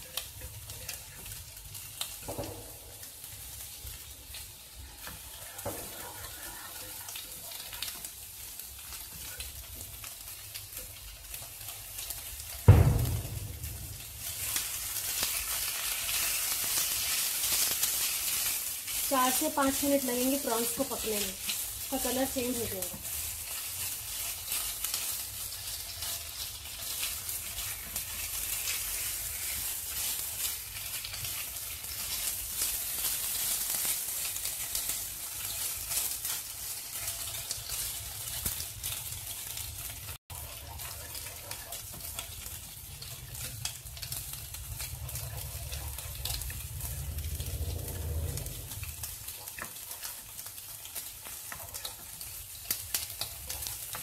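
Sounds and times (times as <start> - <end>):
prawns sizzling in oil: 0.0 - 54.0
spatula scraping wok: 4.3 - 9.4, 11.6 - 39.1, 39.8 - 52.4
low rumble: 12.7 - 14.7, 42.8 - 49.2.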